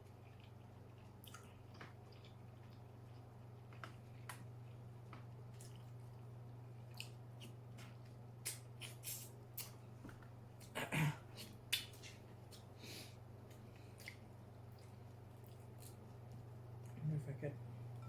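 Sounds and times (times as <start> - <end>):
faint low hum: 0.0 - 18.0
wet mouth clicks while chewing: 0.3 - 4.4, 6.9 - 9.8, 11.4 - 12.7, 13.5 - 16.0.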